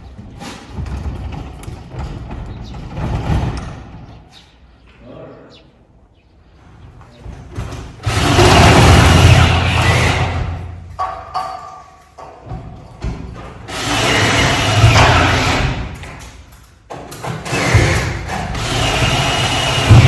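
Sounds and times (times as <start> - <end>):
knocks and clattering: 0.0 - 4.4, 6.8 - 20.0
loud rumbling rattle: 8.0 - 11.0, 17.5 - 20.0.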